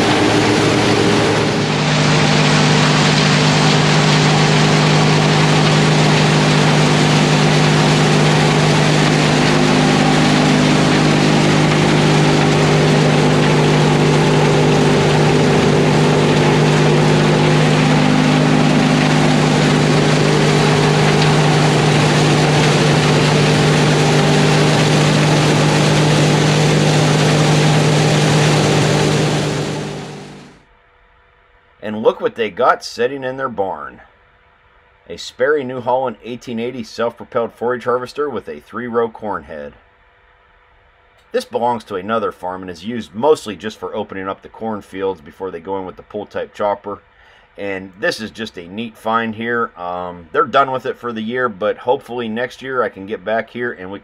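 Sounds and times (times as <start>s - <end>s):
machinery rushing hiss: 0.0s - 30.6s
tractor engine running: 0.0s - 30.6s.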